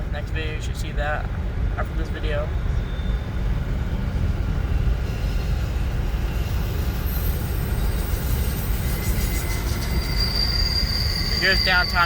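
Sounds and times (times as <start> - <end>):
train low rumble: 0.0 - 12.0
high-pitched wheel squeal: 2.5 - 12.0.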